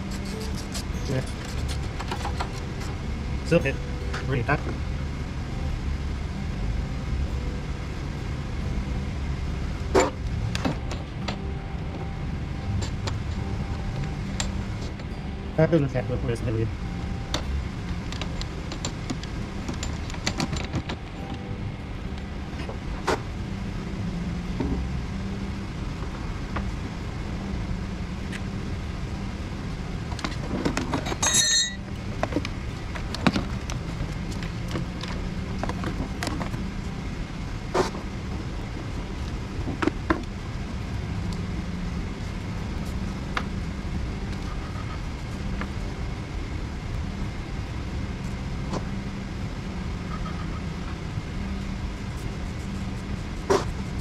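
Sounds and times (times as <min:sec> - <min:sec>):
vehicle engine running: 0:00.0 - 0:54.0
high squeal: 0:31.1 - 0:31.8.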